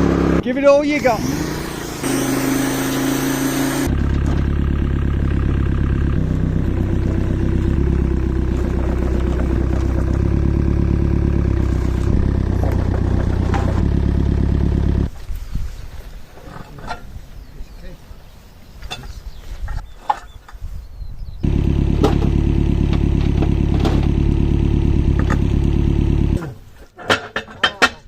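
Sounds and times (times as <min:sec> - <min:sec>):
power washer engine running: 0:01.0 - 0:15.1, 0:21.4 - 0:26.4.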